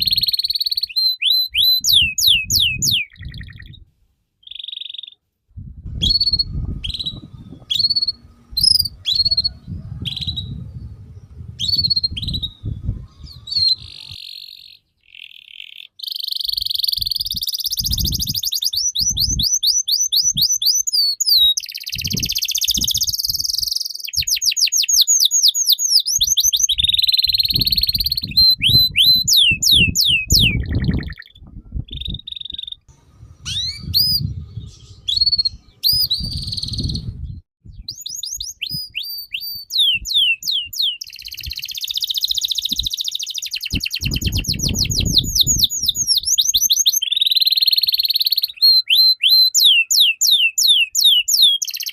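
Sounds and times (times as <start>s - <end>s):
songbird singing: 0.0s - 3.8s, 4.4s - 5.2s, 6.0s - 51.9s
low rumble: 5.6s - 14.2s.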